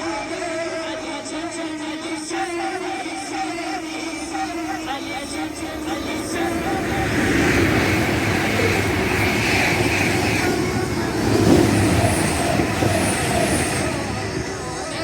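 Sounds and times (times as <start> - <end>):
faint high squeals: 0.0 - 15.0
train rumbling past: 0.0 - 15.0.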